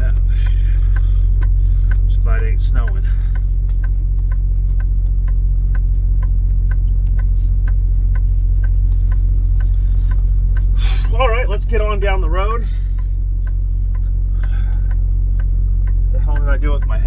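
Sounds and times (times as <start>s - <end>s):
diesel engine idling: 0.0s - 17.0s
light ticking: 0.0s - 17.0s.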